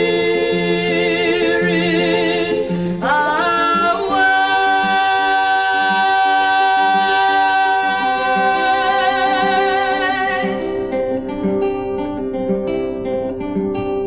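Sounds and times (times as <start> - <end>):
woman singing with vibrato: 0.0 - 11.0
acoustic guitar: 0.0 - 14.0.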